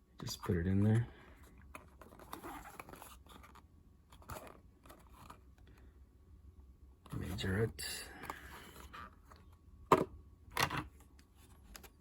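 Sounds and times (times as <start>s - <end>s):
packaging crinkling and scraping: 1.3s - 5.8s.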